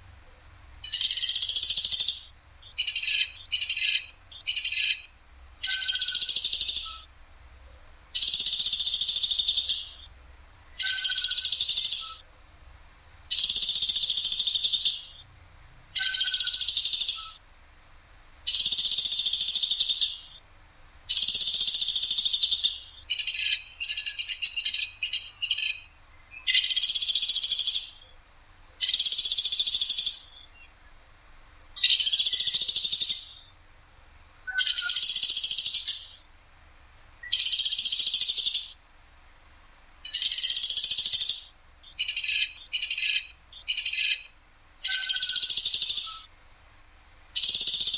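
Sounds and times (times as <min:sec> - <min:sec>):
woodpecker harsh rattling calls: 0:00.8 - 0:07.1, 0:08.1 - 0:10.1, 0:10.7 - 0:12.3, 0:13.3 - 0:15.3, 0:15.9 - 0:17.4, 0:18.5 - 0:20.4, 0:21.1 - 0:28.2, 0:28.8 - 0:30.6, 0:31.8 - 0:33.6, 0:34.4 - 0:36.3, 0:37.2 - 0:38.8, 0:40.0 - 0:46.4, 0:47.0 - 0:47.9.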